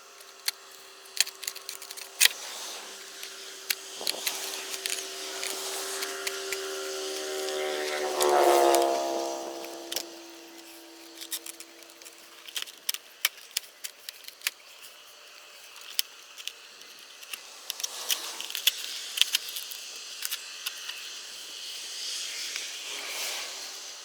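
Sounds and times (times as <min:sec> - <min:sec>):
sharp clicks and rattles: 0:00.2 - 0:02.4, 0:09.6 - 0:14.9
hissy rustle: 0:00.8 - 0:12.6, 0:16.9 - 0:24.0.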